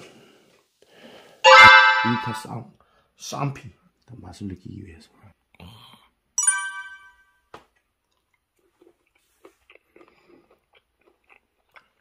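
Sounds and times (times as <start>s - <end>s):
bell-like chime: 1.4s - 2.5s, 6.4s - 7.2s
wet chewing clicks: 7.8s - 12.0s.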